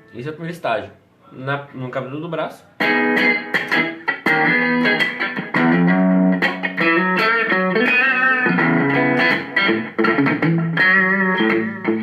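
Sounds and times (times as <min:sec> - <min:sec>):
distorted electric guitar playing: 0:02.8 - 0:12.0.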